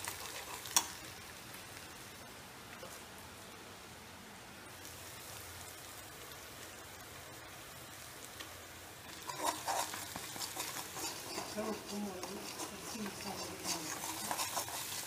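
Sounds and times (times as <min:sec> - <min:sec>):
steel spoon stirring and scraping: 0:00.0 - 0:00.9, 0:09.1 - 0:15.0
food sizzling in a wok: 0:00.0 - 0:15.0.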